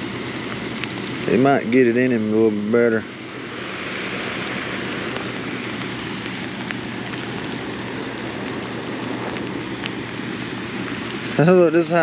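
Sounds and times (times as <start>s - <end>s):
steady rain falling: 0.0s - 12.0s
raindrops ticking on gear: 4.8s - 12.0s.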